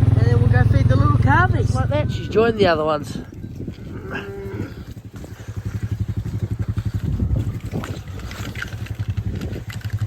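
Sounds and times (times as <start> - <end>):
small farm vehicle engine running: 0.0 - 2.4, 4.8 - 10.0.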